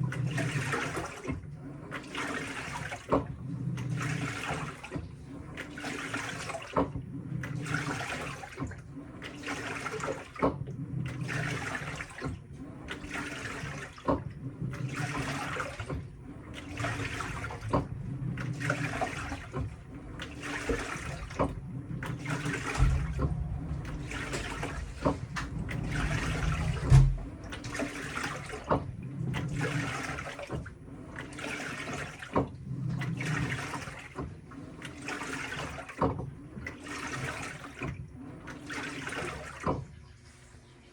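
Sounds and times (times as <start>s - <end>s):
washing machine water sloshing: 0.0s - 40.9s
low rumble: 19.7s - 27.8s
thump: 22.6s - 25.5s, 26.5s - 27.3s.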